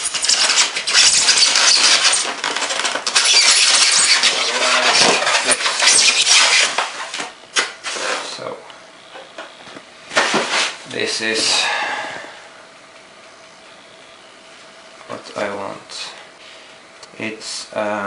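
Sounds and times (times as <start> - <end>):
packaging rustling and crinkling: 0.0 - 8.4.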